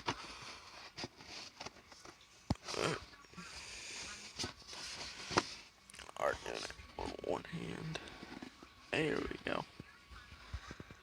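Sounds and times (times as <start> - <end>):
cardboard box rustle: 0.0 - 2.3, 4.2 - 5.7.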